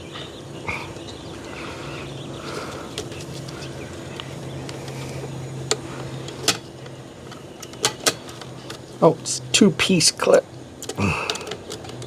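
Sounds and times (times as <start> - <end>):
steady low hum: 0.0 - 12.0
plastic clips clicking: 2.5 - 9.0, 10.1 - 12.0.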